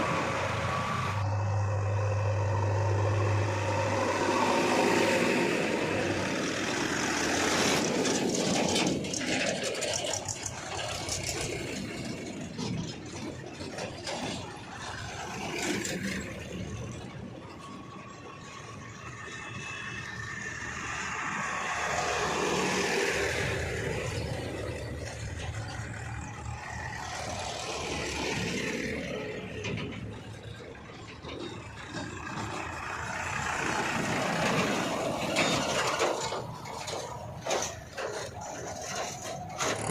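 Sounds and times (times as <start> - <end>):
backhoe diesel engine under load: 0.0 - 39.9.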